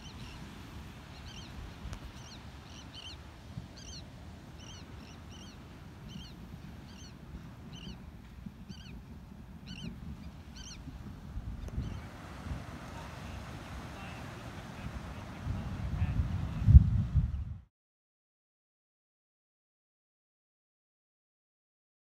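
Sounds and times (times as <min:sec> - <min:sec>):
wind rumble: 0:03.4 - 0:17.7.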